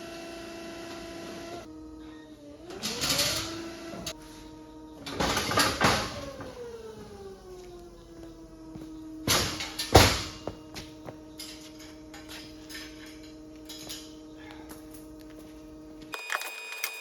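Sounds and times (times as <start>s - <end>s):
steady hum: 0.0s - 16.2s
loud knocks: 9.2s - 11.2s.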